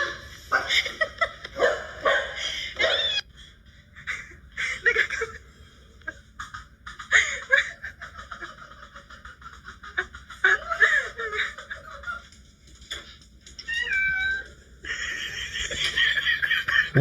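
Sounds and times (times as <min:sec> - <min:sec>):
person laughing: 0:04.0 - 0:12.4, 0:14.8 - 0:17.0.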